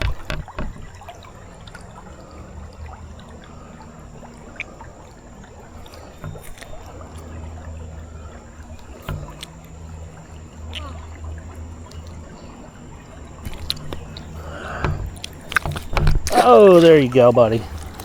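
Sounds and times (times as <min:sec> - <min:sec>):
light knocks and clicks: 0:00.0 - 0:02.0, 0:05.8 - 0:07.8, 0:08.6 - 0:12.5, 0:13.4 - 0:18.0
creek water flowing: 0:00.0 - 0:18.0.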